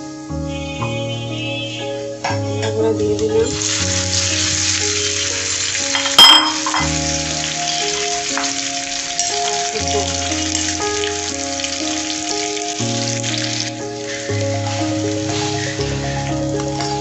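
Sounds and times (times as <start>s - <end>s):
food sizzling in oil: 3.4s - 17.0s
sharp metallic clink: 6.0s - 7.0s.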